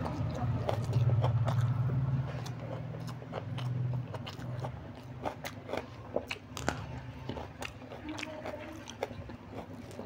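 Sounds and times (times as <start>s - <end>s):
crunchy bites into chilli: 0.0s - 10.0s
person chewing food: 0.0s - 10.0s.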